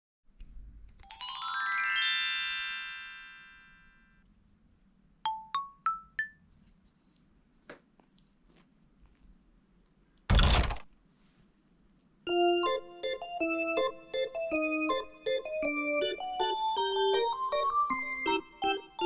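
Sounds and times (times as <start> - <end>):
bell-like mallet percussion jingle: 1.0 - 4.2, 5.3 - 6.4.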